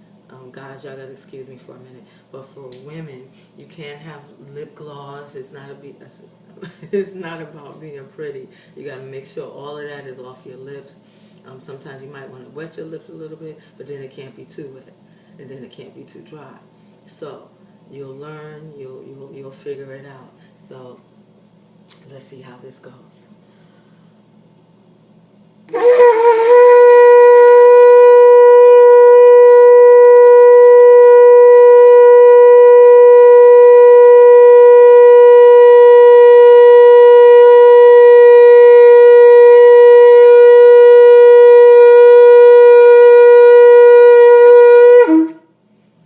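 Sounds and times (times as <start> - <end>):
shofar blast: 25.7 - 45.5.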